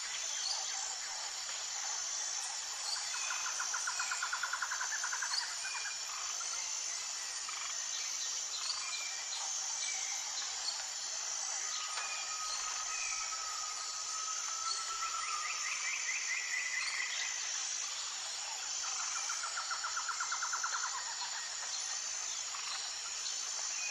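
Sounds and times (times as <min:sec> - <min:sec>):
high insect drone: 0:00.0 - 0:23.9.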